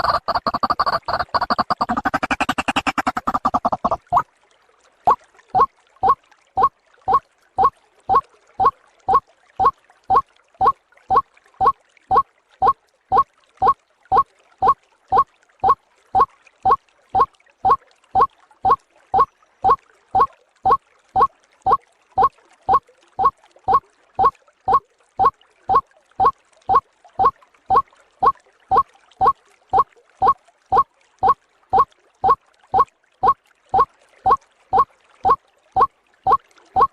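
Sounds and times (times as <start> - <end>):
waterhen calls: 0.0 - 4.2.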